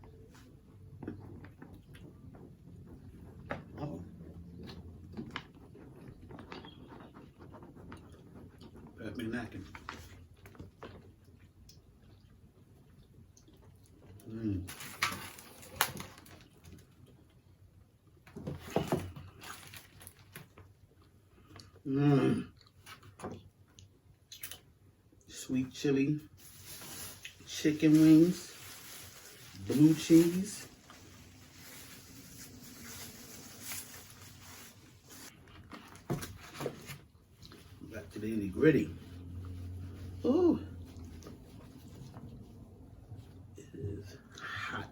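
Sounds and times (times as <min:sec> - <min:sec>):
chewing: 0:04.5 - 0:09.0, 0:09.6 - 0:14.3.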